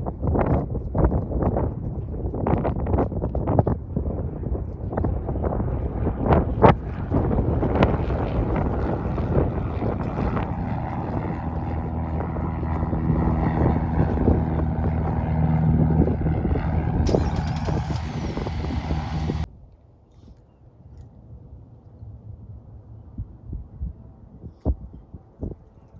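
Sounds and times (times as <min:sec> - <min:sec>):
wind buffeting microphone: 0:00.0 - 0:19.5
propeller aircraft engine: 0:01.8 - 0:19.5.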